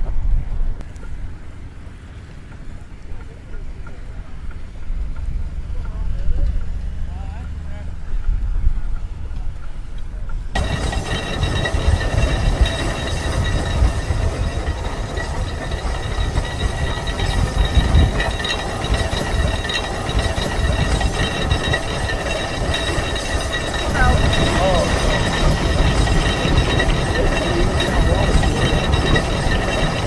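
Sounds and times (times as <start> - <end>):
steam engine rumble and clatter: 0.0 - 30.0
high mechanical whine: 10.5 - 30.0.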